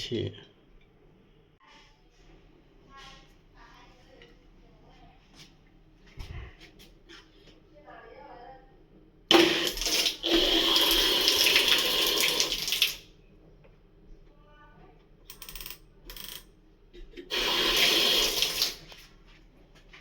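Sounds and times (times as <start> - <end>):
shower head spraying water: 17.3 - 18.9.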